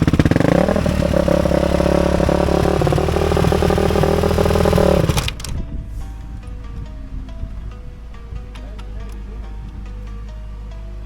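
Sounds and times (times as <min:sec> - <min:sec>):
dirt bike engine running: 0:00.0 - 0:05.7
quiet background music: 0:00.0 - 0:11.0.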